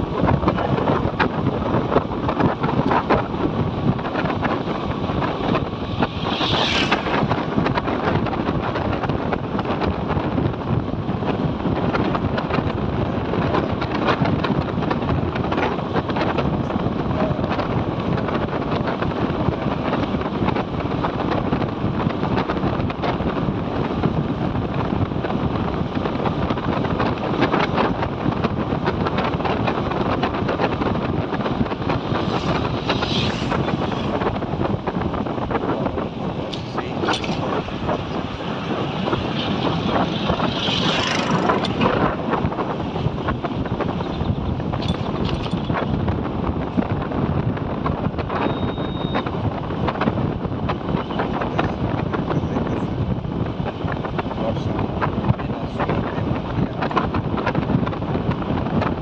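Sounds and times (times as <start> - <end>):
road noise: 0.0 - 59.0
wind buffeting microphone: 0.0 - 59.0
high-pitched rising sound: 5.6 - 7.6, 32.0 - 34.2
motorcycle engine: 37.0 - 43.3.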